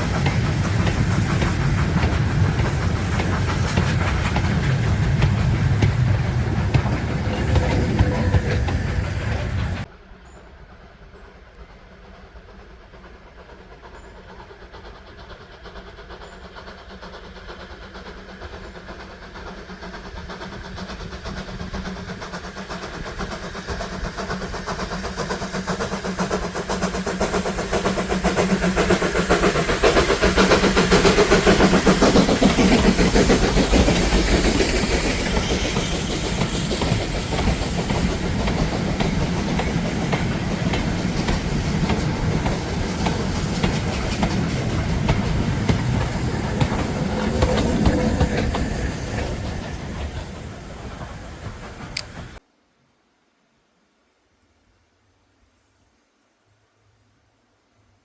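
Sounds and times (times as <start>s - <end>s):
wheels clacking on rail joints: 0.0s - 9.9s, 20.2s - 52.4s
steam train passing: 0.0s - 52.4s.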